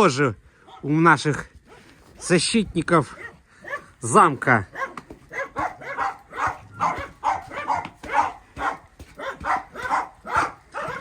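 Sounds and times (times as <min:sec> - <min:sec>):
dog barking: 0:03.1 - 0:11.0.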